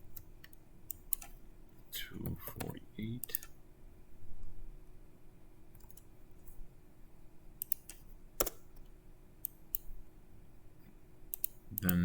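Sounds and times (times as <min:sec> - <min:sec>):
faint steady hum: 0:00.0 - 0:12.0
mouse and keyboard clicks: 0:00.1 - 0:01.4, 0:02.2 - 0:03.6, 0:05.8 - 0:06.1, 0:07.6 - 0:09.9, 0:11.3 - 0:11.9.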